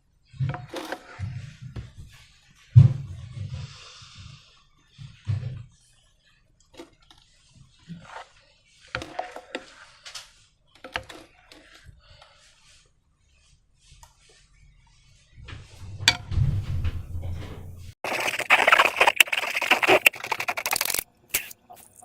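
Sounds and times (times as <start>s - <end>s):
sticky slime squelches: 18.0s - 22.0s.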